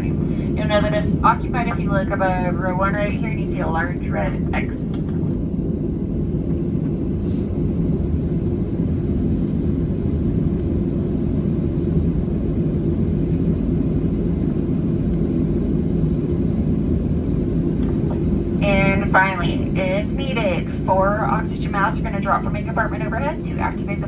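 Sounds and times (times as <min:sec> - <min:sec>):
airplane cabin rumble: 0:00.0 - 0:24.0.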